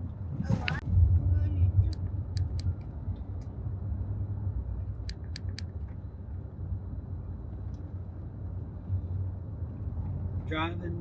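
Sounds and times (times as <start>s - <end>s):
road and engine rumble: 0.0s - 11.0s
quick sharp clicks: 1.9s - 2.9s, 5.0s - 5.8s.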